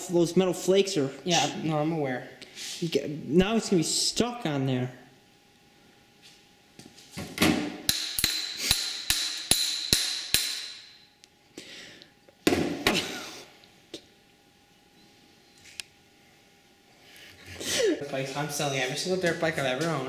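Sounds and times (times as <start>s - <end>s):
hammer striking metal: 7.9s - 11.1s.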